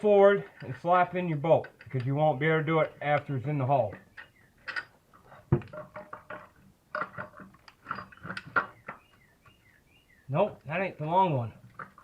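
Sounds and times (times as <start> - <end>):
metal clinking and knocking: 0.4 - 9.0.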